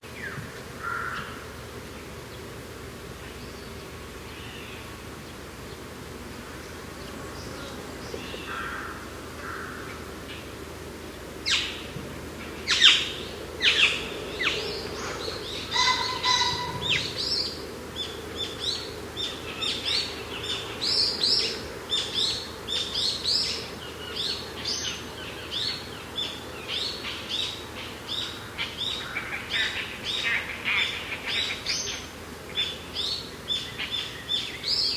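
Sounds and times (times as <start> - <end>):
birds chirping and singing: 12.5 - 34.9.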